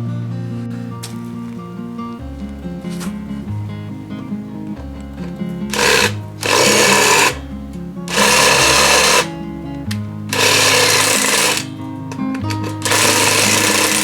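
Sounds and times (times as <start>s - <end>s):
background music: 0.0s - 14.0s
power tool bursts: 5.7s - 7.5s, 8.1s - 14.0s.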